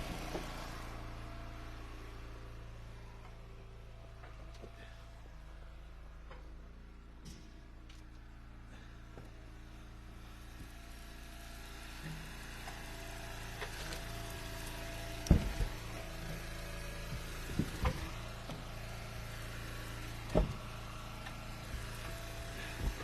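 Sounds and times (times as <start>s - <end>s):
wood splitter engine running: 0.0s - 23.0s
firewood knocking: 13.6s - 16.1s, 17.1s - 18.6s, 20.3s - 20.7s.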